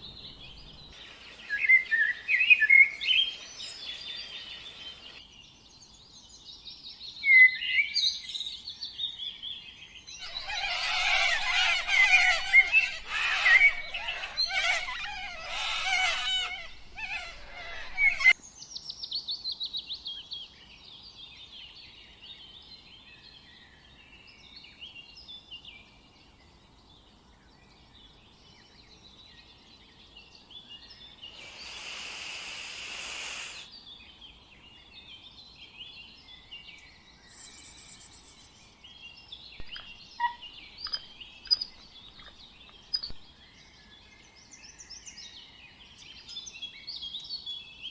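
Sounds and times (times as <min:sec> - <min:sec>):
birds chirping and calling: 0:00.0 - 0:05.2, 0:10.2 - 0:18.4, 0:39.6 - 0:43.2
bird trill: 0:10.2 - 0:18.4, 0:37.2 - 0:38.8
brief hiss: 0:31.3 - 0:33.7.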